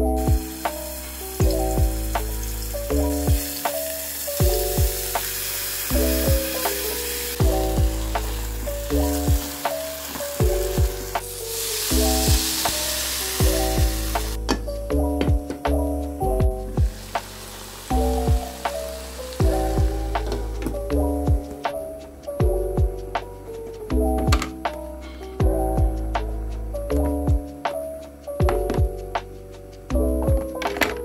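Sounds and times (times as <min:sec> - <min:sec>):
background music with a steady beat: 0:00.0 - 0:31.0
food sizzling in a hot pan: 0:00.2 - 0:14.4, 0:16.9 - 0:20.4.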